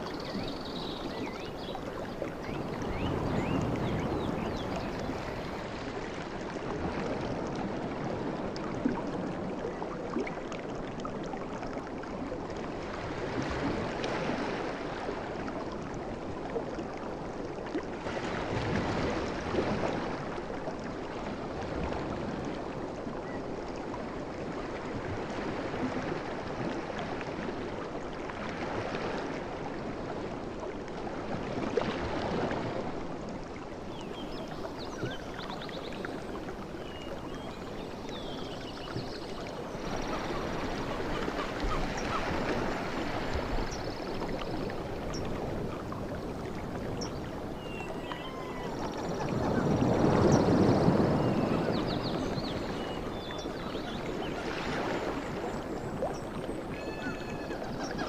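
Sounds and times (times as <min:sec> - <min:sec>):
sea waves on beach: 0:00.0 - 0:09.5, 0:23.8 - 0:58.0.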